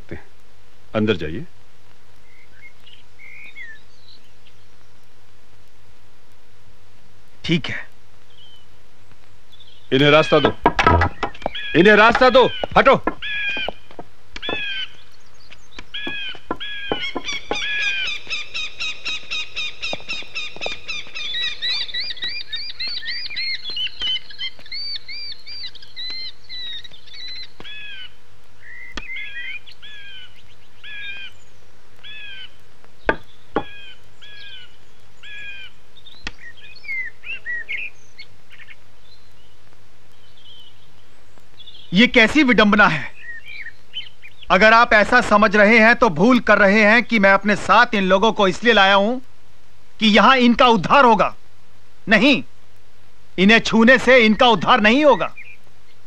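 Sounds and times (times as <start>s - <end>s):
birds chirping: 0.0s - 49.4s, 50.0s - 51.4s, 52.0s - 52.6s, 53.3s - 56.0s
sharp knocks: 10.4s - 14.7s, 15.8s - 17.8s.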